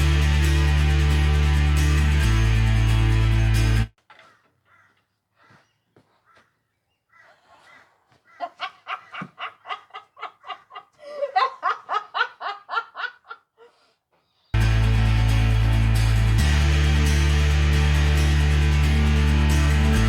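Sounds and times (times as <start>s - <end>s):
person laughing: 8.4s - 13.8s.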